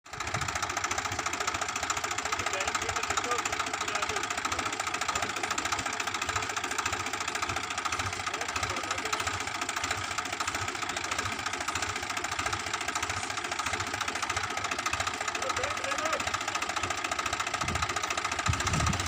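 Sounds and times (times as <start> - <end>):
combine harvester running: 0.0 - 19.0.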